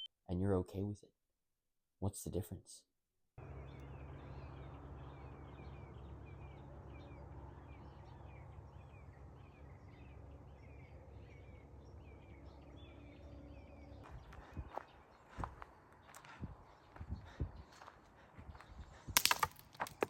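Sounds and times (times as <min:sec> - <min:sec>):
steady low rumble: 0:03.4 - 0:19.2.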